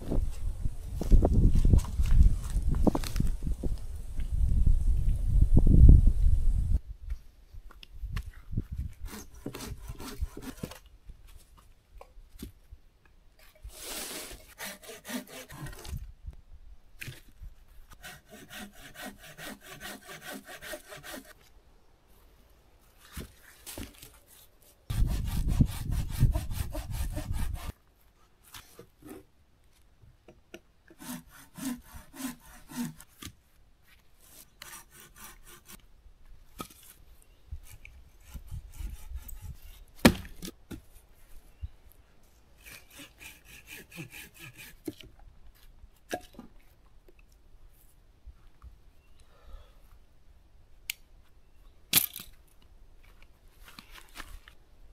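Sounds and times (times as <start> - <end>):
saw cutting wood: 9.0 - 10.7, 13.8 - 16.0, 17.9 - 21.4, 24.9 - 27.7, 31.0 - 33.1, 34.3 - 35.8, 37.7 - 39.8, 42.6 - 44.9.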